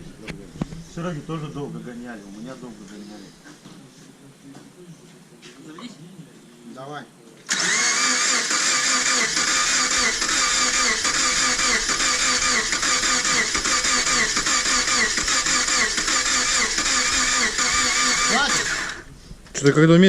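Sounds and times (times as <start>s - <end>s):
starter motor cranking engine: 7.5s - 19.1s.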